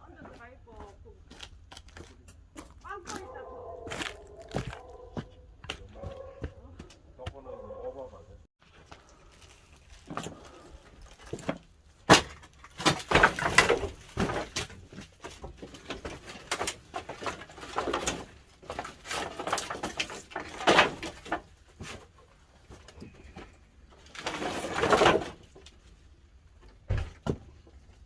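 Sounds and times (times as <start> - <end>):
sharp wood crack: 9.5 - 22.0.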